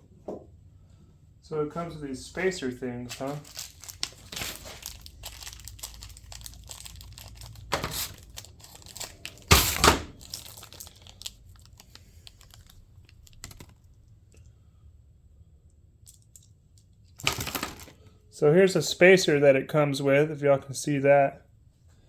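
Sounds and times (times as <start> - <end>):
plastic packaging rustling: 3.0 - 13.9, 17.1 - 18.0.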